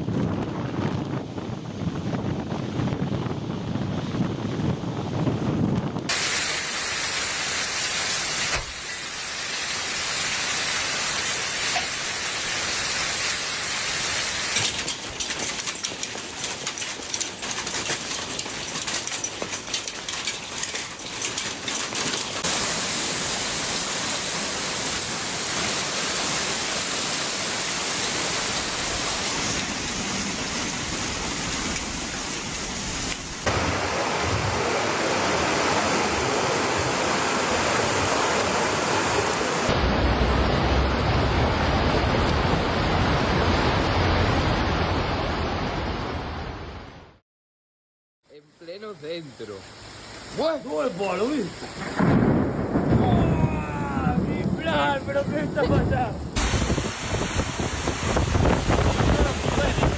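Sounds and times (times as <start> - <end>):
heavy rain: 6.1 - 47.2, 48.5 - 59.9
rushing water: 6.1 - 47.2, 48.4 - 59.9
dense crackling patter: 14.5 - 22.6, 23.8 - 33.5, 50.4 - 56.8, 57.4 - 59.9.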